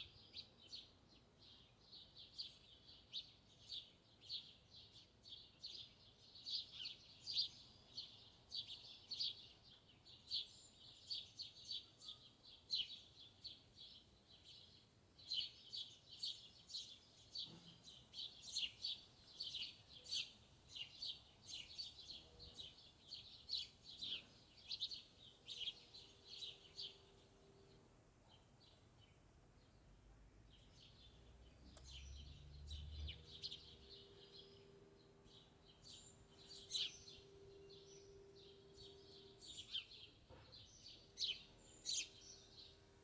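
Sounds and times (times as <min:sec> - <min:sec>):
small bird chirping rapidly: 0:06.4 - 0:27.9, 0:30.6 - 0:43.0.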